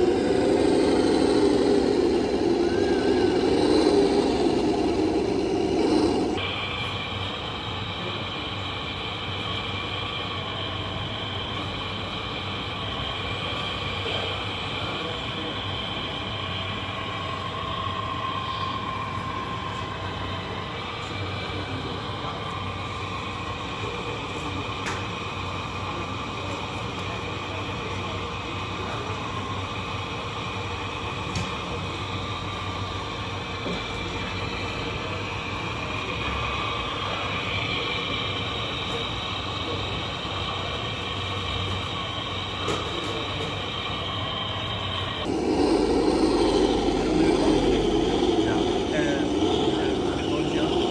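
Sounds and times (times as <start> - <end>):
electric motors whining: 0.0 - 6.4, 45.2 - 50.9.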